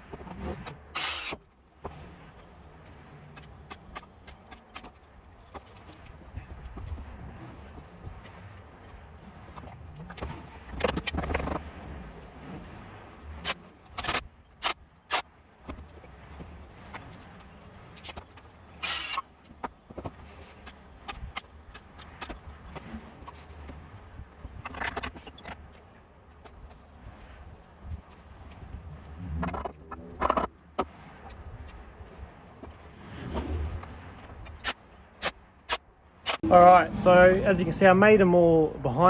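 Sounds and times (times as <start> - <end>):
tools clinking and scraping: 18.0 - 19.2.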